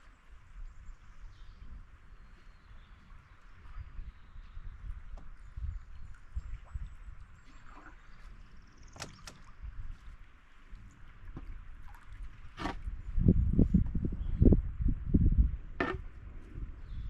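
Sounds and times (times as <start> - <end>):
soft water sounds: 0.0 - 17.0
paddle knocking against hull: 8.9 - 9.7, 11.2 - 12.9, 15.7 - 16.2
low thumps and rumbles: 10.7 - 17.0.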